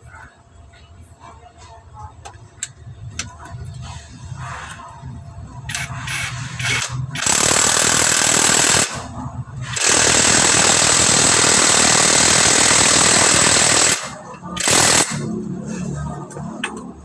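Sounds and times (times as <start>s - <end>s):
power tool rattling hammer: 6.1s - 9.1s, 9.7s - 15.2s.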